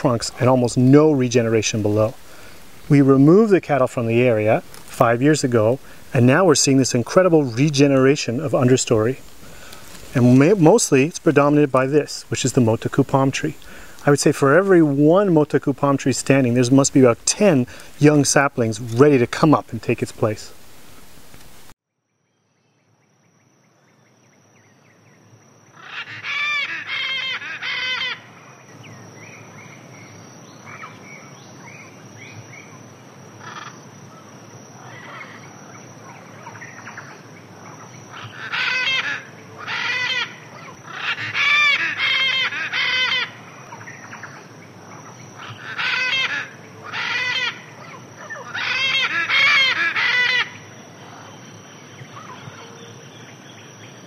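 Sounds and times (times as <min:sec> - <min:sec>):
harsh bird calls: 0:25.7 - 0:32.8, 0:33.4 - 0:54.0.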